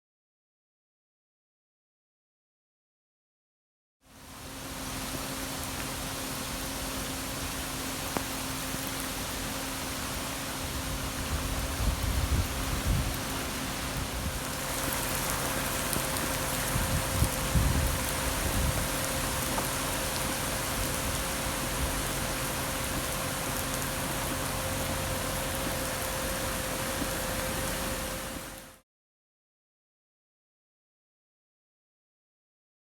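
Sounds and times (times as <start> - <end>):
heavy rain pouring: 4.2 - 28.8
rumbling wind gusts: 9.9 - 28.5.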